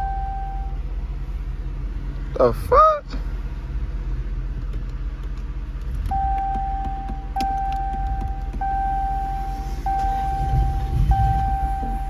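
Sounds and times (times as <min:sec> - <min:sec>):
car warning chime: 0:00.0 - 0:00.8, 0:06.1 - 0:12.0
low rumble: 0:00.0 - 0:12.0.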